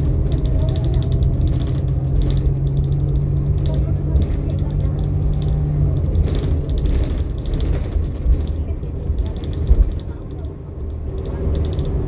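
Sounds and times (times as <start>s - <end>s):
bus engine low drone: 0.0s - 12.0s
interior fittings rattling: 0.3s - 8.6s.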